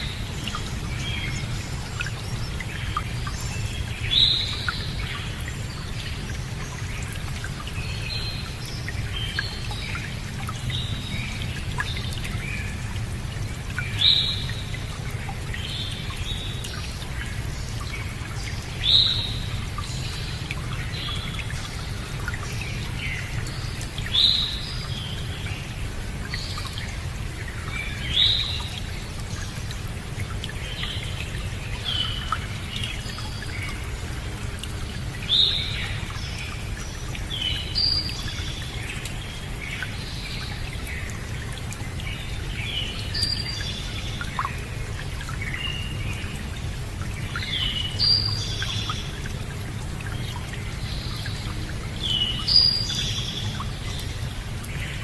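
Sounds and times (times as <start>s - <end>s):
flowing water: 0.0s - 55.0s.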